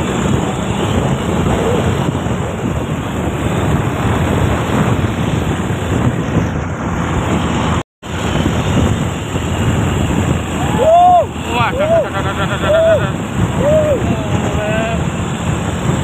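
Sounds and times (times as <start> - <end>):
vehicle and road noise rumble: 0.0 - 16.0
wind buffeting microphone: 0.0 - 16.0.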